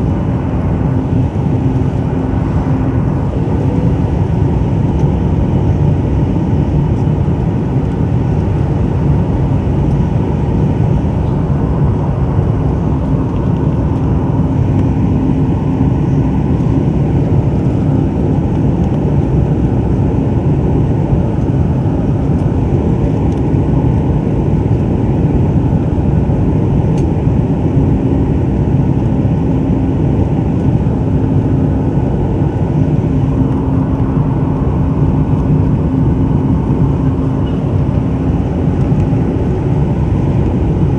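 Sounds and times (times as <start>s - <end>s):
airflow rushing over fuselage: 0.0s - 7.0s, 29.6s - 40.9s
jet engines droning: 0.0s - 40.9s.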